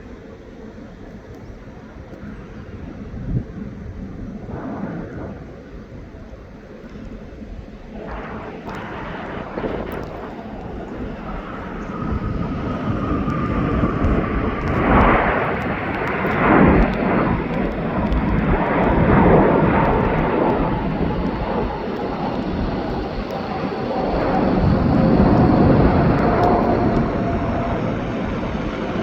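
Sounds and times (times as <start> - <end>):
jet airliner engines rumbling: 0.0 - 29.0.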